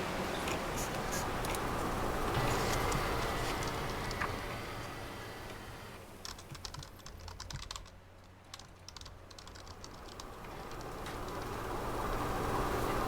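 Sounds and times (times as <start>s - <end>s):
faint office background noise: 0.0s - 13.0s
typing on a keyboard: 6.2s - 11.6s.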